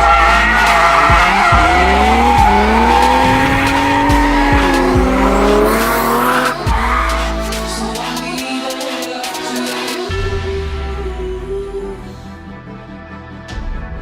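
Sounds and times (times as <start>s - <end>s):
tyres squealing: 0.0s - 8.2s
car engine revving: 0.0s - 8.4s
background music: 0.0s - 14.0s.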